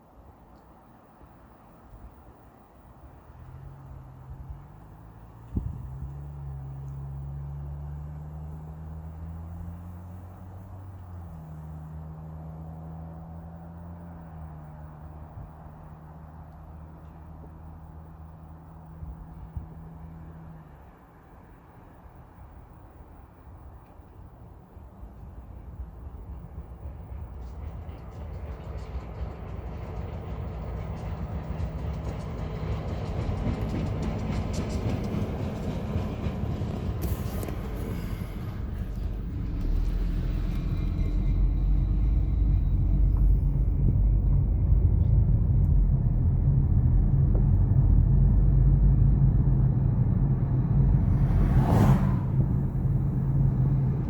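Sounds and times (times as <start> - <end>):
freight train engine rumble: 14.2 - 54.0
low drone: 37.0 - 54.0.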